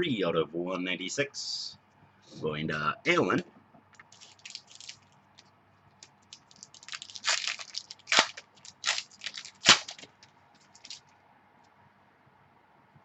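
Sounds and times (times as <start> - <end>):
card packaging crackles and snaps: 4.0 - 5.0, 6.0 - 11.0.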